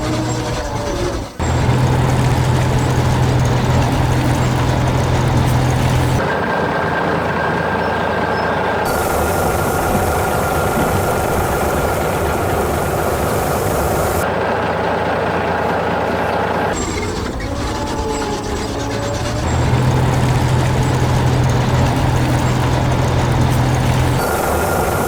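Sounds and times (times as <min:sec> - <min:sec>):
heavy vehicle engine: 0:00.0 - 0:25.0
hiss: 0:08.9 - 0:14.2, 0:19.5 - 0:25.0.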